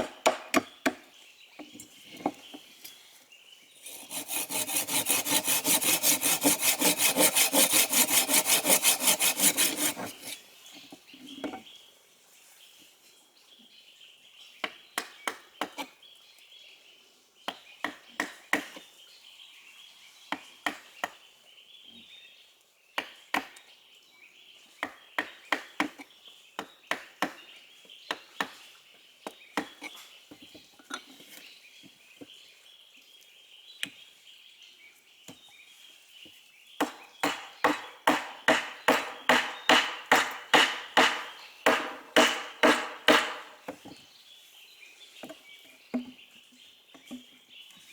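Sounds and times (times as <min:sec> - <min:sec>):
sharp strikes on wood: 0:00.0 - 0:01.0, 0:36.8 - 0:43.8.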